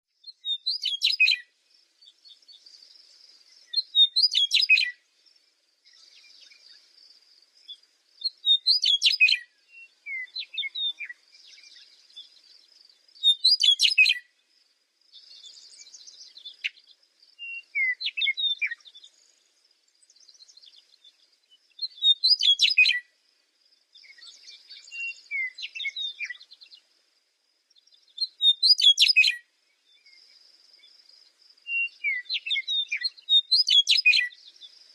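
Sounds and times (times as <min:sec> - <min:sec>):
bird chirps: 0:00.2 - 0:14.4, 0:15.1 - 0:23.2, 0:23.8 - 0:26.9, 0:27.6 - 0:34.9
songbird warbling: 0:07.7 - 0:12.5, 0:13.2 - 0:14.3, 0:15.2 - 0:19.3, 0:20.1 - 0:23.1, 0:28.2 - 0:29.4, 0:31.7 - 0:34.6.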